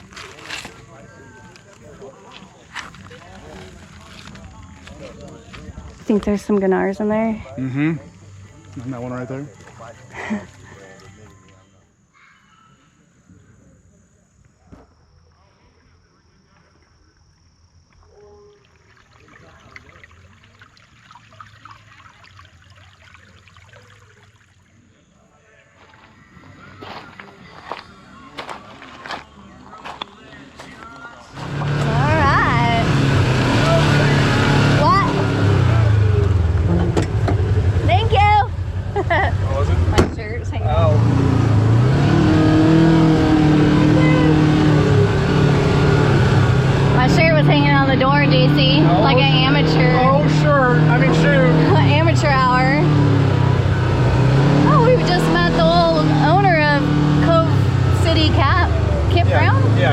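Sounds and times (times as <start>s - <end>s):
faint trickle of creek water: 15.7s - 25.4s
engine pulling under throttle: 31.3s - 59.9s.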